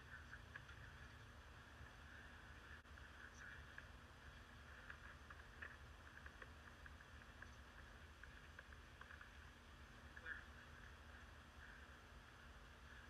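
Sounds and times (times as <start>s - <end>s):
faint low hum: 0.0s - 13.0s
faint light ticks: 2.8s - 10.9s.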